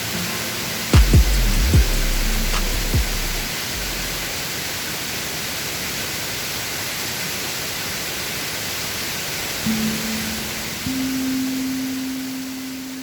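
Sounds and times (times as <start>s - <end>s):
waterfall roaring: 0.0s - 13.0s
bass note: 1.0s - 4.3s
held low musical tone: 1.0s - 4.3s.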